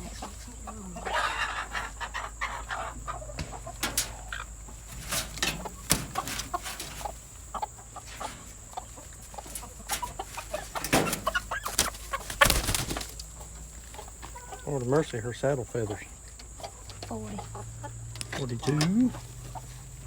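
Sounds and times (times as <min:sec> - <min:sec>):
hens clucking: 0:00.0 - 0:20.0
sharp clicks and knocks: 0:05.0 - 0:06.9.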